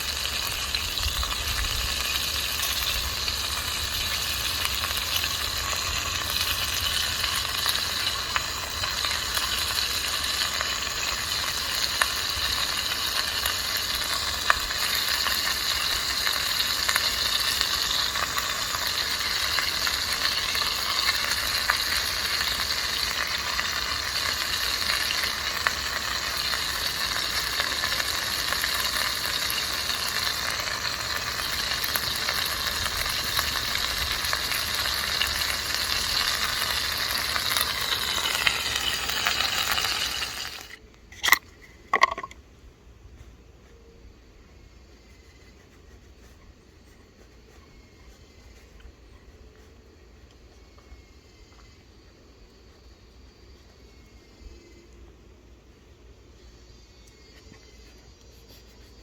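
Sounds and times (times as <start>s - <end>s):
food sizzling in a pan: 0.0s - 40.8s.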